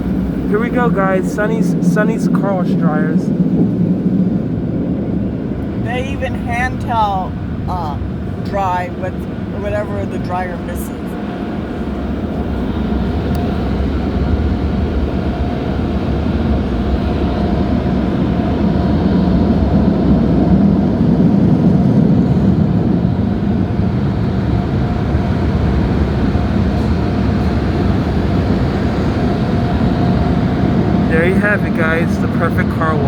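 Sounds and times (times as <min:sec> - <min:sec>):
faint fan hum: 0:24.7 - 0:33.0.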